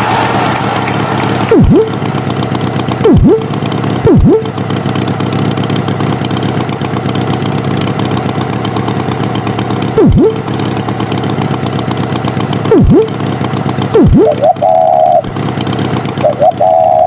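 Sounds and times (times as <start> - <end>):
swooping sound effect: 0.0 - 2.1, 3.0 - 4.6, 10.0 - 10.5, 12.7 - 13.2, 14.0 - 15.2
cartoon tractor engine running: 0.0 - 17.0.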